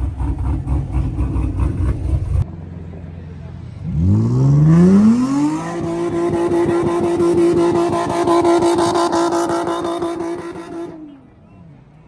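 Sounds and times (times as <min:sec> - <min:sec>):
engine revving hard: 0:00.0 - 0:02.4, 0:03.8 - 0:11.0.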